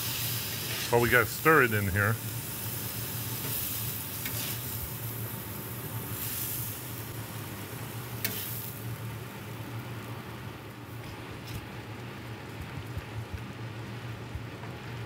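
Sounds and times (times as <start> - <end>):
vegetables sizzling on a griddle: 0.0 - 11.6
metal spatula stirring: 4.2 - 4.7.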